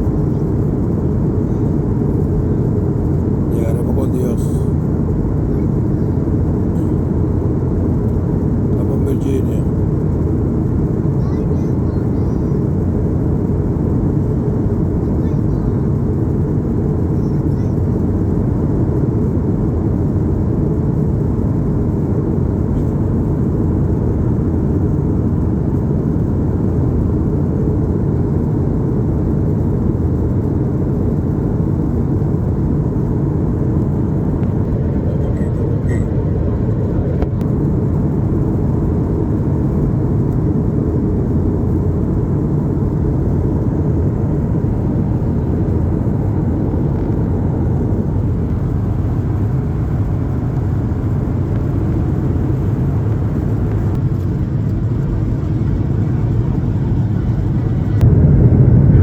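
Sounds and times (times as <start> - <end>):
vehicle rumble from inside: 40.2 - 59.0.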